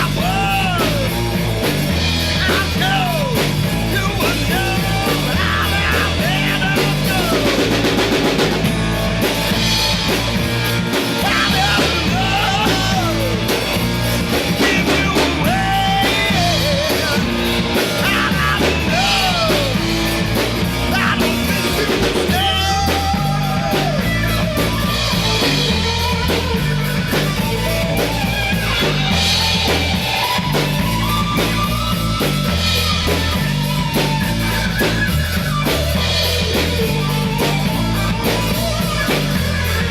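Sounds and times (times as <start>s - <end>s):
rock song with vocals: 0.0s - 39.9s.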